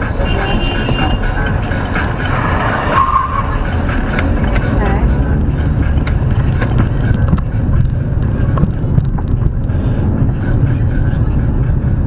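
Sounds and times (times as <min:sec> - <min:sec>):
vehicle road and engine rumble: 0:00.0 - 0:12.0.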